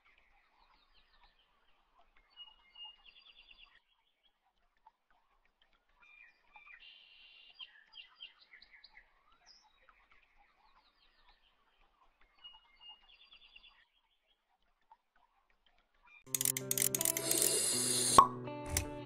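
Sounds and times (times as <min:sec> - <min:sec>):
small birds chirping: 0:00.0 - 0:14.5.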